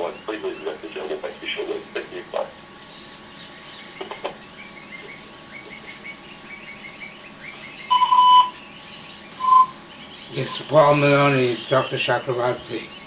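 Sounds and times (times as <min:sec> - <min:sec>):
birds chirping: 0:00.0 - 0:13.0
voicemail beep: 0:07.9 - 0:08.6, 0:09.4 - 0:09.8.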